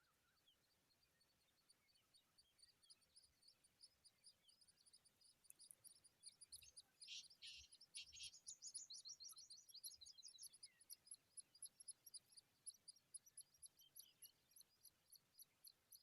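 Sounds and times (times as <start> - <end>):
nestlings chirping: 4.5 - 16.0.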